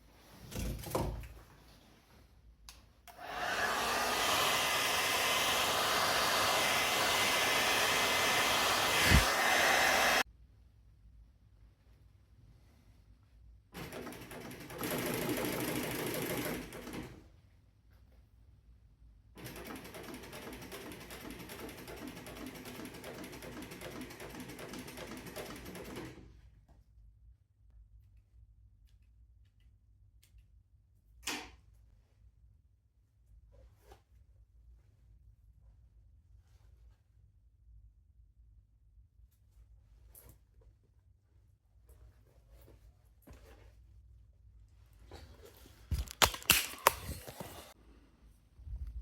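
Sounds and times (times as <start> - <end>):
hair dryer blowing: 3.1 - 10.2
sewing machine stitching: 13.8 - 17.2, 19.4 - 26.3.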